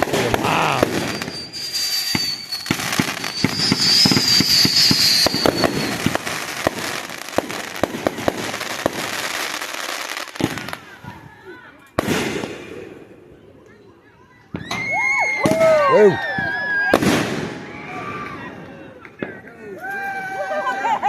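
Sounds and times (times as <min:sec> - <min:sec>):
fireworks bangs and crackles: 0:00.0 - 0:13.8, 0:14.5 - 0:19.6
high whistling tone: 0:00.6 - 0:06.1.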